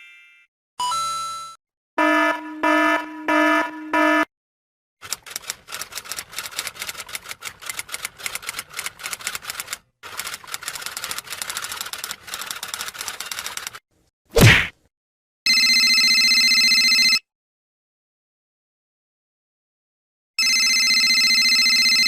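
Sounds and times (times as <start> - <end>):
rapid typing clicks: 5.0 - 13.8.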